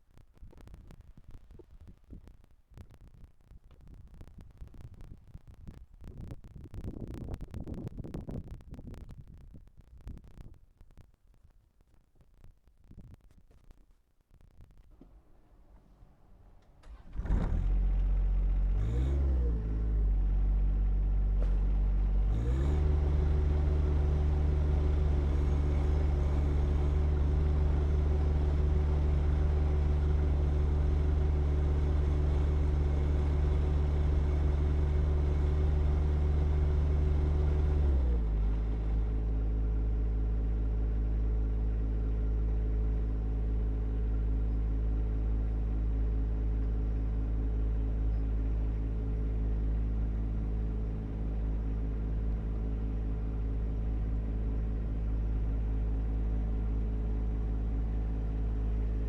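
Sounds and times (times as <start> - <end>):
diesel tractor engine running: 16.8 - 59.0.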